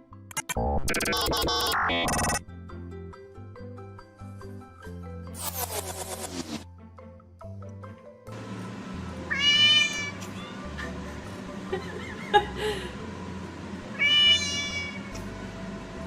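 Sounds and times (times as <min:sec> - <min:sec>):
background music: 0:00.0 - 0:14.0, 0:15.2 - 0:16.0
cat meowing: 0:09.3 - 0:10.7, 0:13.9 - 0:15.2.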